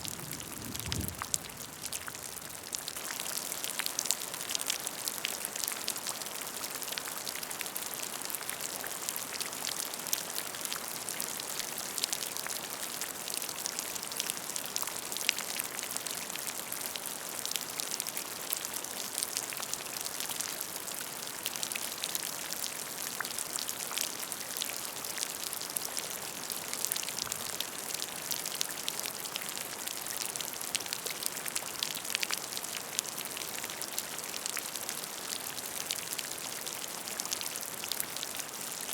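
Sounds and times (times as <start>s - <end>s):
rain falling on puddle: 0.0s - 38.9s.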